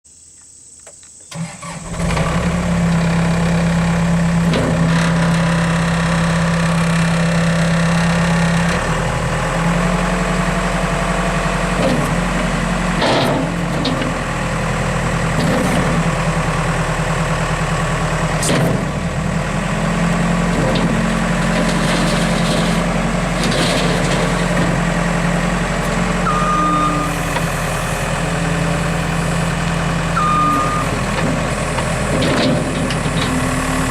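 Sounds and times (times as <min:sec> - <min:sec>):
diesel engine running: 0:01.4 - 0:33.9
backup alarm beeps: 0:26.2 - 0:27.2, 0:30.2 - 0:31.0.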